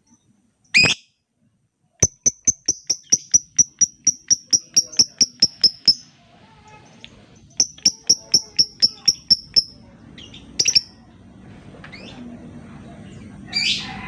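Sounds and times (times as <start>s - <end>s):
lovebird chirping: 2.0s - 6.2s, 7.4s - 11.0s.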